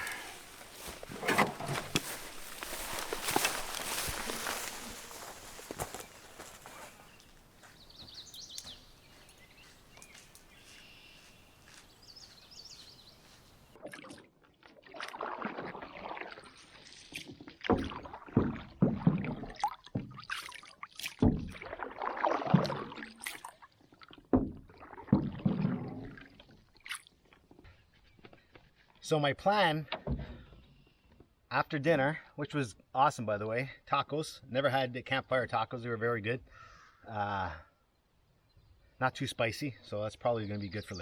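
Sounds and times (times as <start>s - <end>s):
paddle splashing through water: 13.8s - 23.5s.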